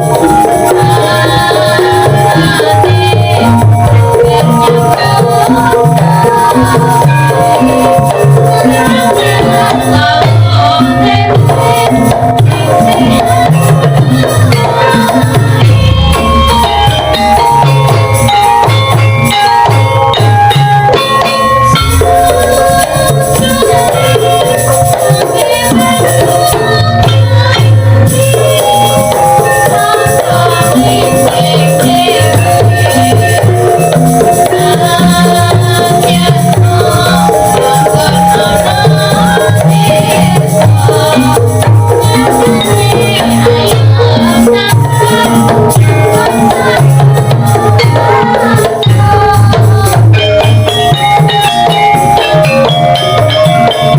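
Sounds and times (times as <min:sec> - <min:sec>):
metallophones and gongs ringing: 0:00.0 - 0:53.9
wavering melodic line: 0:00.0 - 0:53.9
hand drum strokes: 0:10.0 - 0:53.8.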